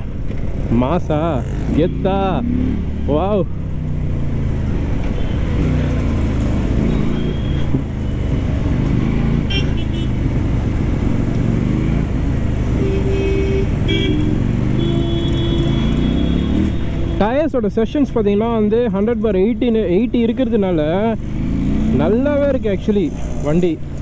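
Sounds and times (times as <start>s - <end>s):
motorcycle engine running: 0.0s - 17.2s
horn blasts: 9.5s - 10.2s, 12.7s - 17.2s.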